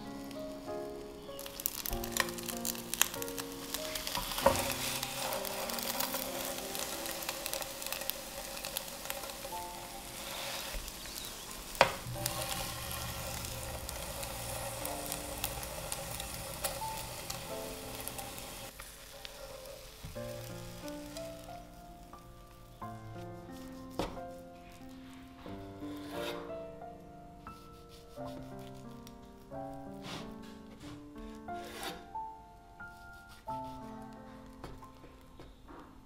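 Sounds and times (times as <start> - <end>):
omelette sizzling in oil: 0.0 - 22.9
utensils clicking against pan: 1.4 - 21.2.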